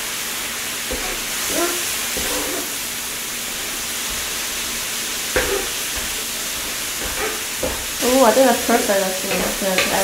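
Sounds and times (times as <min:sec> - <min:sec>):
food sizzling on a griddle: 0:00.0 - 0:10.0
wooden spatula knocking on plate: 0:05.4 - 0:06.2, 0:07.0 - 0:07.9.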